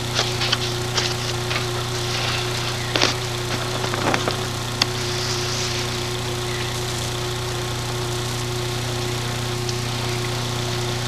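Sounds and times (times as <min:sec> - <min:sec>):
lawn mower engine idling: 0:00.0 - 0:11.0.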